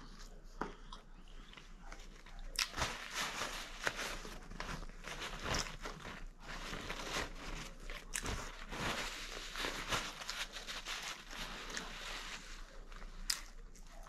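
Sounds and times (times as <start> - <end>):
person chewing food: 0.0 - 2.8.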